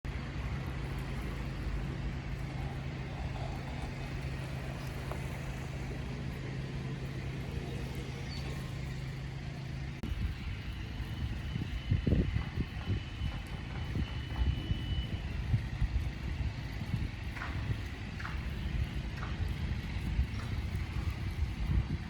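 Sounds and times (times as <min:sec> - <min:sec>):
vehicle engine idling: 0:00.1 - 0:22.0.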